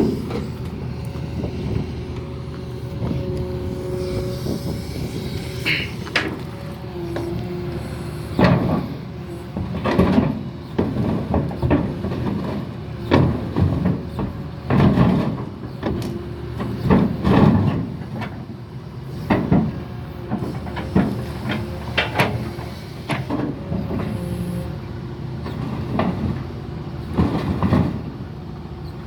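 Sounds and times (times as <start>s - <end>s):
excavator engine running: 0.0s - 29.0s
heavy steel scrapes and clanks: 2.7s - 10.4s.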